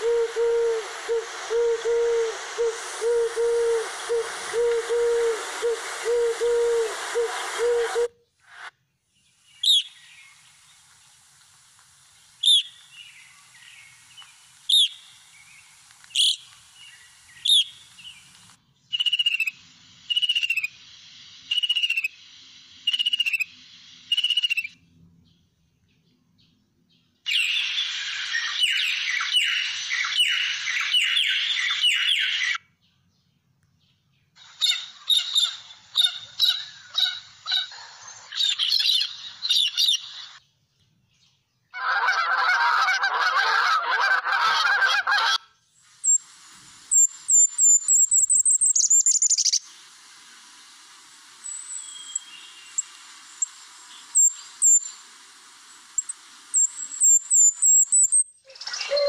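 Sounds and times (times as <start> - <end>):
geese honking: 41.8 - 45.4
chirpy bird calls: 56.6 - 59.0.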